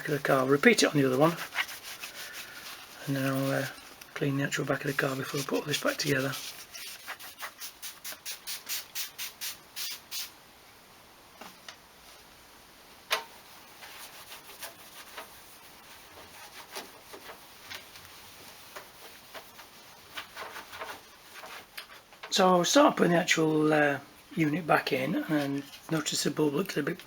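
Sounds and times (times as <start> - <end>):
squeaks and scrapes: 0.0 - 8.5, 13.3 - 22.4, 25.2 - 26.7
scrubbing plastic: 0.0 - 9.9, 13.3 - 22.4.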